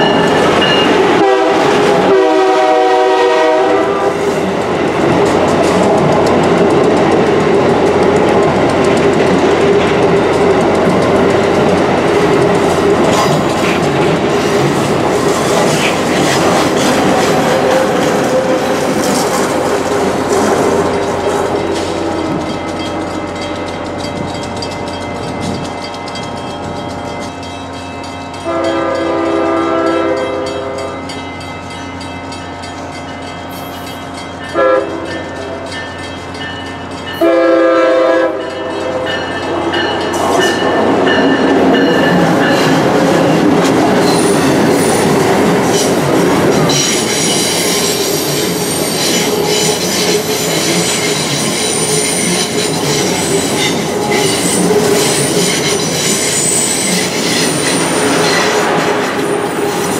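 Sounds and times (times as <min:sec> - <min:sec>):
train rumbling past: 0:00.0 - 0:59.9
train horn blasts: 0:00.1 - 0:04.3, 0:28.4 - 0:31.1, 0:34.5 - 0:35.6, 0:37.2 - 0:39.2
wheel squeal: 0:46.7 - 0:58.6.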